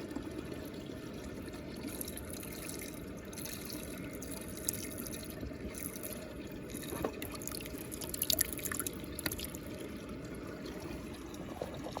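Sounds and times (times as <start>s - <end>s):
water drips and splashes: 0.0s - 12.0s
water swirling and trickling: 0.0s - 12.0s.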